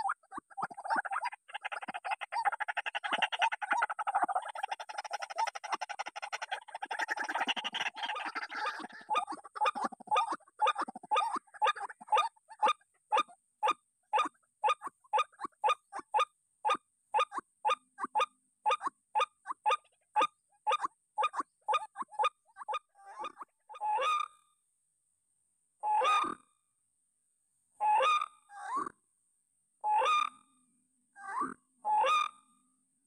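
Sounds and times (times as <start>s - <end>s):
waterhen calling: 0.0s - 13.3s, 20.8s - 24.3s.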